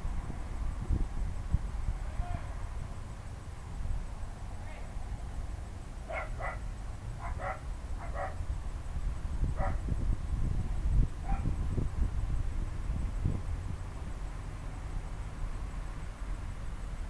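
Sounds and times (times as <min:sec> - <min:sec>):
dog barking: 0:06.1 - 0:06.6, 0:07.2 - 0:08.4, 0:09.6 - 0:09.8, 0:11.2 - 0:11.4
low rumble of thunder: 0:06.2 - 0:14.0.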